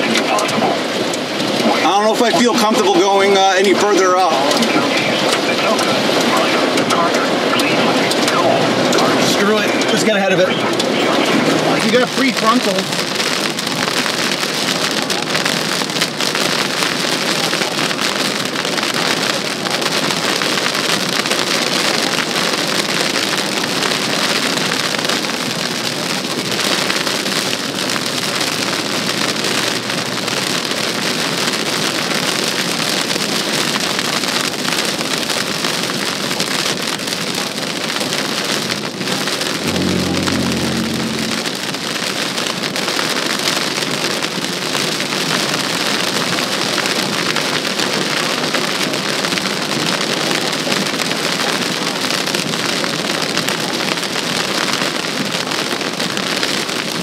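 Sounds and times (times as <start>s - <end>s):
heavy rain on a car: 0.0s - 57.0s
short low tone: 39.6s - 42.1s.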